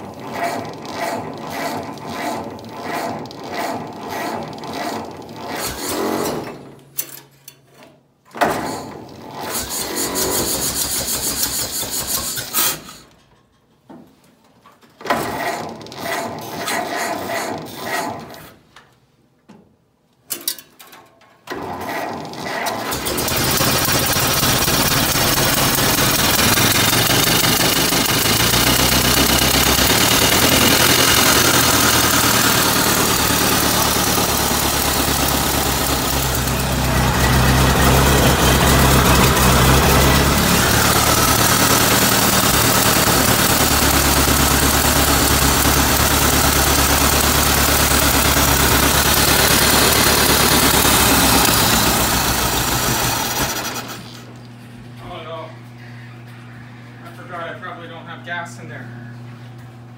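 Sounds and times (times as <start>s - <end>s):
car engine running: 23.3s - 54.2s.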